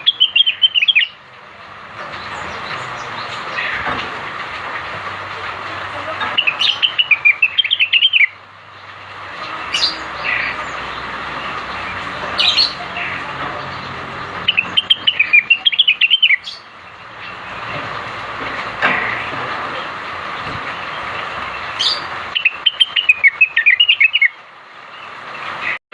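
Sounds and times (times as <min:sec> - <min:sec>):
bird singing chattering phrases: 0:00.0 - 0:01.2, 0:05.9 - 0:17.8, 0:20.8 - 0:24.4.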